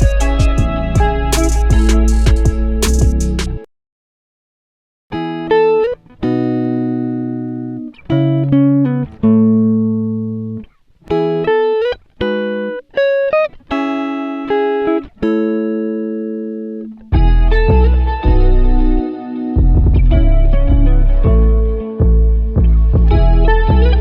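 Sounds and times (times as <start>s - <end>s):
bass part: 0.0s - 3.7s, 17.1s - 19.0s, 19.6s - 24.0s
plucked guitar-like melody: 0.0s - 3.7s, 5.1s - 24.0s.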